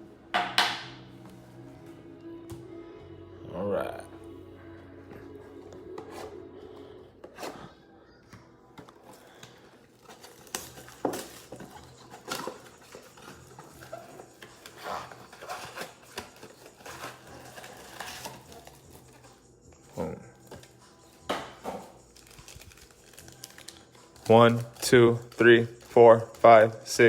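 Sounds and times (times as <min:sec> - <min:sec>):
plastic wrap and cardboard tearing: 0:09.2 - 0:19.3, 0:21.5 - 0:26.4.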